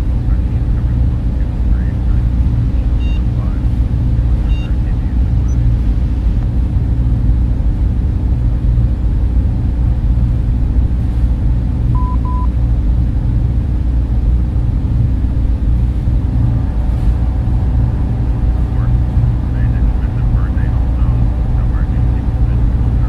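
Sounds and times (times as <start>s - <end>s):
server fans humming: 0.0s - 23.0s
short high beeps: 3.0s - 3.3s, 12.0s - 12.5s.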